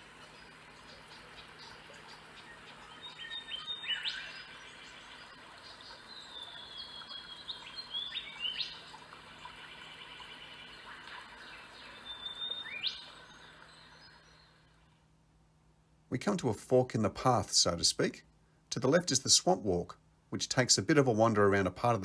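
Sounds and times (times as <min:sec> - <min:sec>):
birds whistling: 0:00.2 - 0:14.9.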